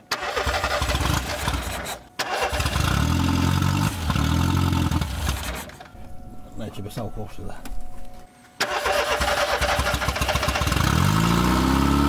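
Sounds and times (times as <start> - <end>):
petrol engine cranking and running unevenly: 0.0 - 3.2, 3.8 - 5.9, 8.6 - 11.1.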